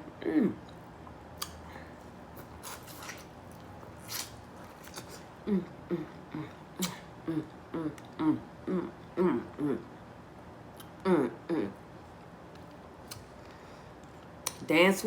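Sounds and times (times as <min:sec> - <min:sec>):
woman humming: 0:00.2 - 0:00.7, 0:05.4 - 0:09.9, 0:11.0 - 0:11.8.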